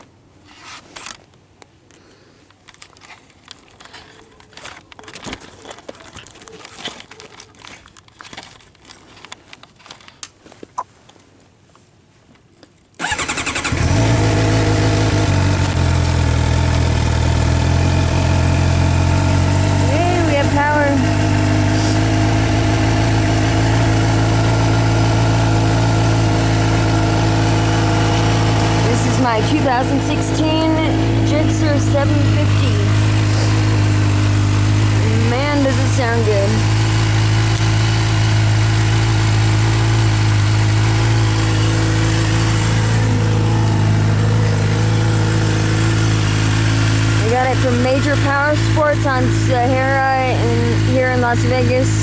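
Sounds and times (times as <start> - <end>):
motorcycle engine idling: 13.0 - 52.0.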